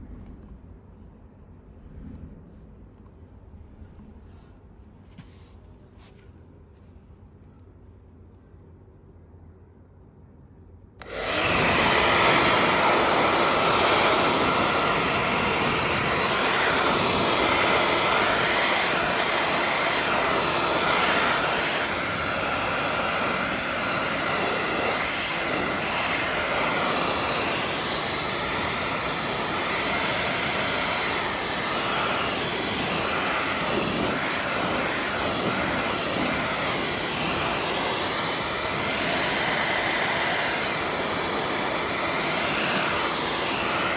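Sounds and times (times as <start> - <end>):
hair dryer blowing: 11.0 - 43.9.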